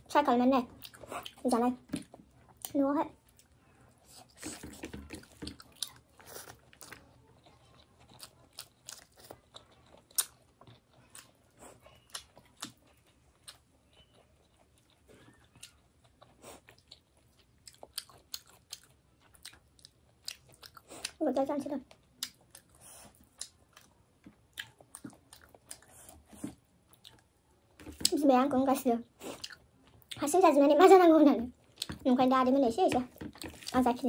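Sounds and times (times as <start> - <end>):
person chewing with mouth clicks: 4.2 - 21.2, 22.1 - 27.3, 29.2 - 30.2.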